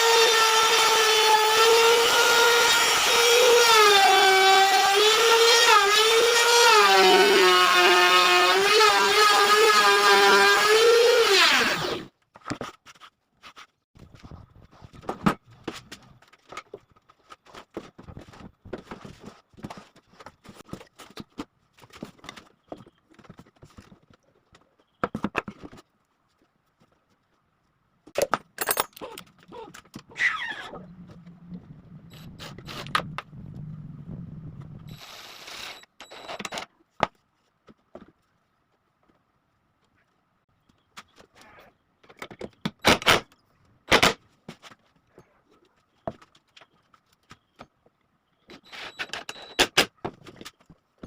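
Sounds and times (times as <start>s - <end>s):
low hum: 30.6s - 35.2s.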